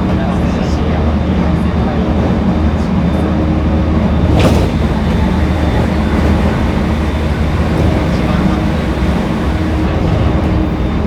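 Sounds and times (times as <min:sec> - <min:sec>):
train wheels rumbling on rails: 0:00.0 - 0:11.0
faint steady tones: 0:04.4 - 0:11.0.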